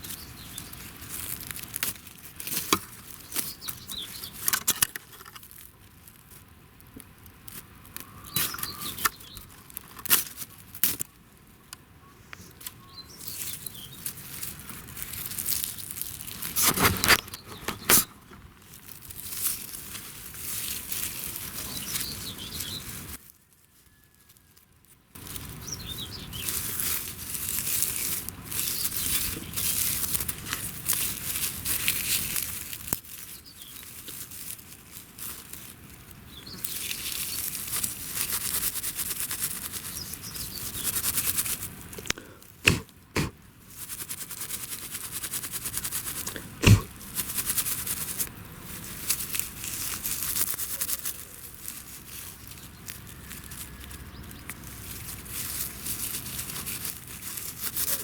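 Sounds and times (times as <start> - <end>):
dry wood scraping and tearing: 0.0 - 11.1, 14.1 - 23.2, 25.2 - 58.0
sharp wood snaps and clicks: 4.4 - 5.5, 42.0 - 43.3, 46.6 - 46.9.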